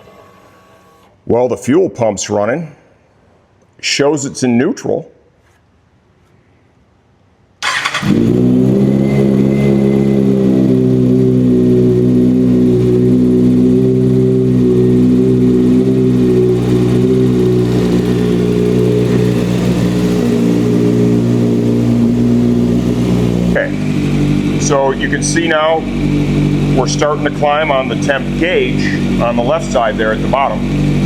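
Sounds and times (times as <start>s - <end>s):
motorcycle engine starting and idling: 7.6s - 31.0s.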